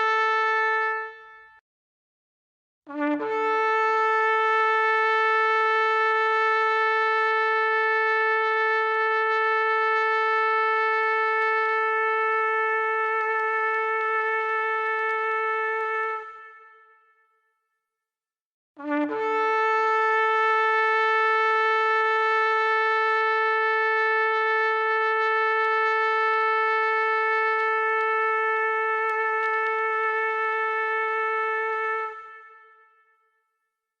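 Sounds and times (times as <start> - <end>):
shofar blast: 0.0 - 1.6, 3.0 - 7.2, 7.9 - 17.3, 18.8 - 33.3.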